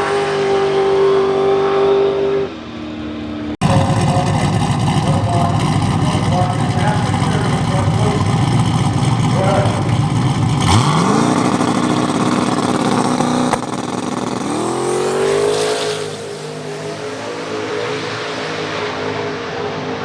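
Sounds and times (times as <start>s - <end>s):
sharp crack: 3.6s - 16.3s
drag car engine at full throttle: 3.6s - 20.0s.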